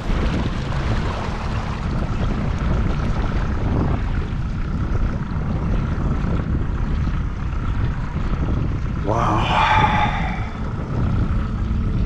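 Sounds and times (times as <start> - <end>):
boat motor droning: 0.0 - 12.0
wind: 0.0 - 12.0
water noise: 8.9 - 12.0.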